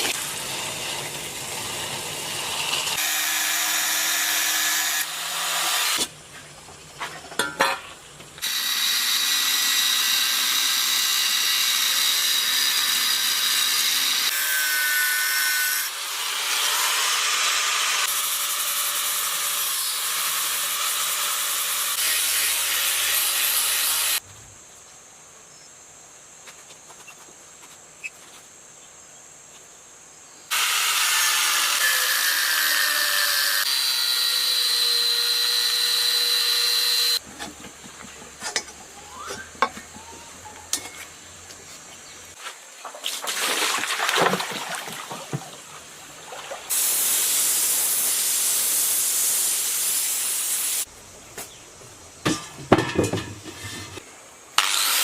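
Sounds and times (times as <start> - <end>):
power tool grinding: 0.0 - 6.0, 30.5 - 37.3.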